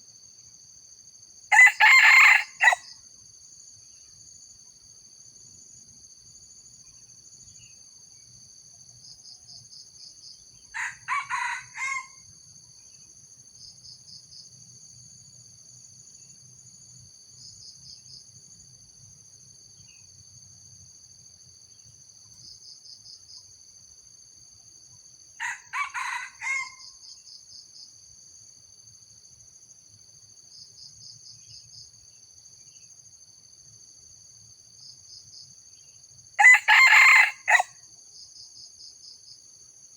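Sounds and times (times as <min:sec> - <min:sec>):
high insect drone: 0:00.0 - 0:39.9
junglefowl crowing: 0:01.5 - 0:02.8, 0:10.8 - 0:12.2, 0:25.4 - 0:26.9, 0:36.4 - 0:37.7.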